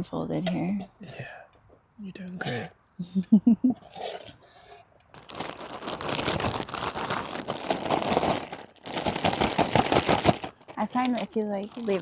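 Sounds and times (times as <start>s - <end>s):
plastic bag crinkling: 5.1s - 12.0s
person speaking: 10.7s - 12.0s.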